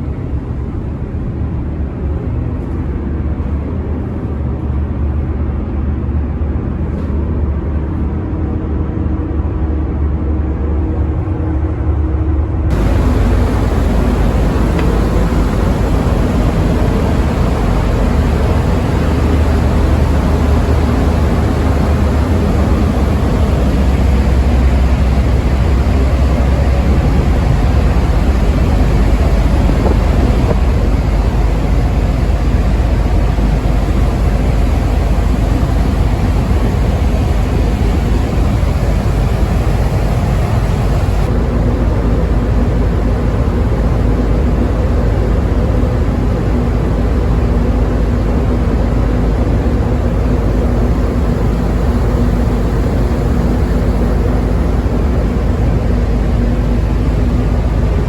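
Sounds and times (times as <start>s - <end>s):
low hum: 0.0s - 58.0s
ship engine rumble: 0.0s - 58.0s
rushing water noise: 12.7s - 58.0s.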